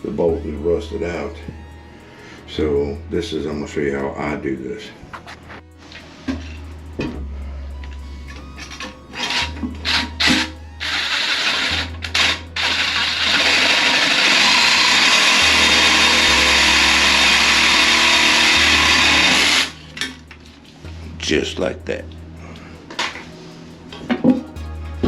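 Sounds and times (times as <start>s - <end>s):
power saw cutting metal bolt: 12.6s - 19.8s.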